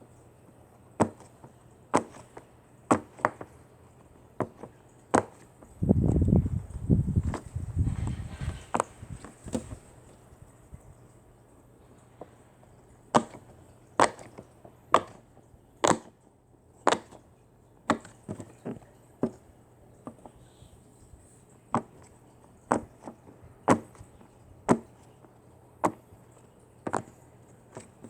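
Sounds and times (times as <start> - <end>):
sharp knocks or chops: 15.8 - 16.1.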